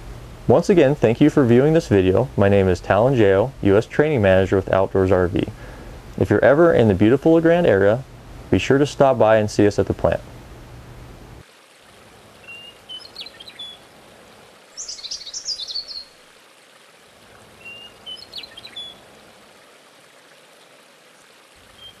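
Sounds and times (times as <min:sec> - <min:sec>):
steady background hiss: 0:00.0 - 0:22.0
small birds chirping: 0:12.4 - 0:13.9, 0:14.6 - 0:16.2, 0:17.2 - 0:19.1, 0:21.2 - 0:22.0.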